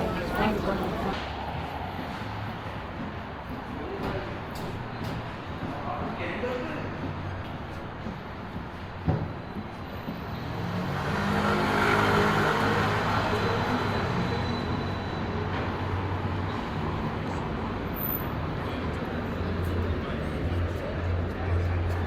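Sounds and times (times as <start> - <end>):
vehicle passing on street: 10.0 - 22.0.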